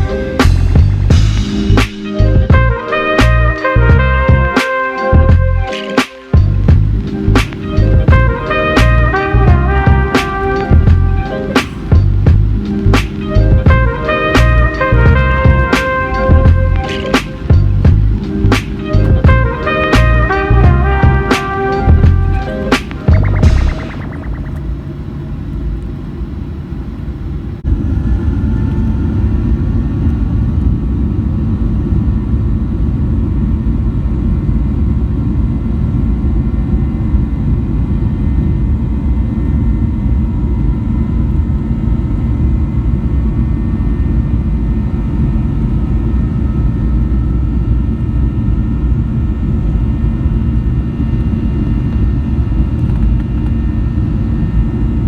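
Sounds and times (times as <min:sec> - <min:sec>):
airplane cabin engine rumble: 0:00.0 - 0:04.5, 0:06.4 - 0:55.0
faint whine: 0:06.4 - 0:29.4.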